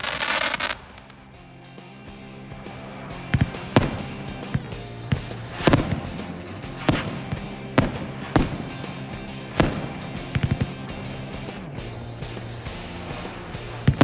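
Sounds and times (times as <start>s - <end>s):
fireworks cracking and banging: 0.0s - 1.3s, 3.3s - 10.9s.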